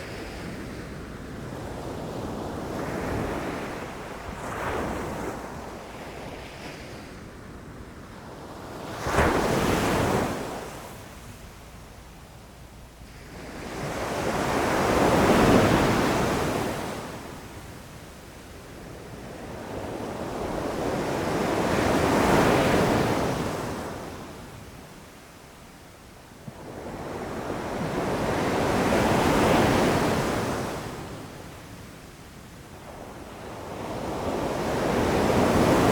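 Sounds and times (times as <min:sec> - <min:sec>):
wind on microphone: 0:00.0 - 0:17.2
waves crashing on beach: 0:32.8 - 0:35.9.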